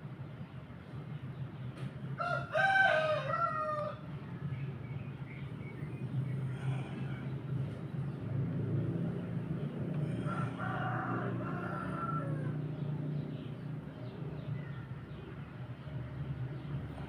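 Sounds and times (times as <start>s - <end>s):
rooster crowing: 2.2s - 4.0s, 10.0s - 12.8s.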